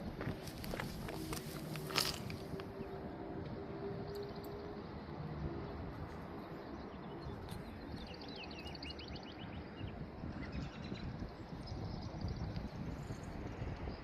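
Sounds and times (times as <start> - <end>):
songbird chirping: 3.9 - 13.2.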